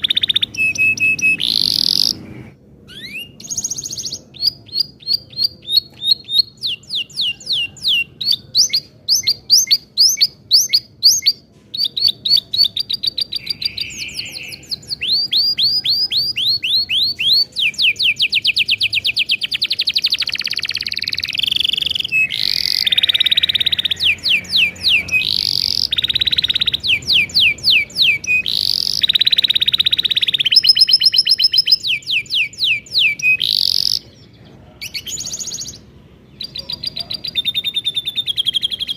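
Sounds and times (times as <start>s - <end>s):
canary singing trills: 0.0s - 2.2s, 2.9s - 38.9s.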